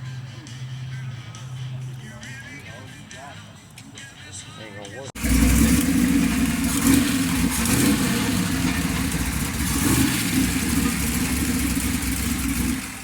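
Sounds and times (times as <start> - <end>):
car engine running loudly: 5.2 - 13.0.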